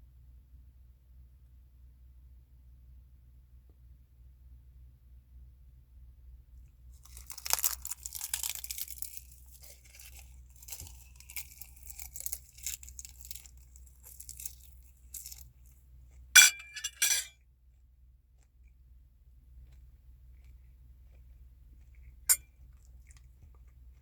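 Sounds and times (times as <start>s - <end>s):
crunchy eating: 7.0s - 17.2s, 19.5s - 24.0s
utensil clinking against dish: 16.4s - 17.3s.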